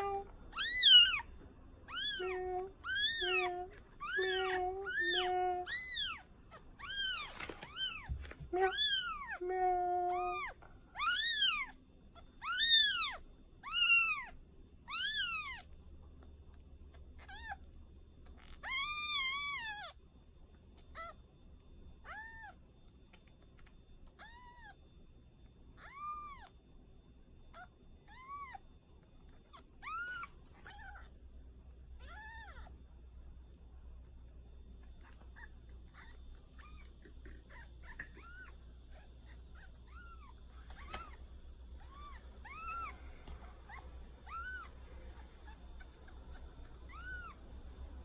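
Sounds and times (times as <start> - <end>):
kitten mewing: 0.0 - 14.3.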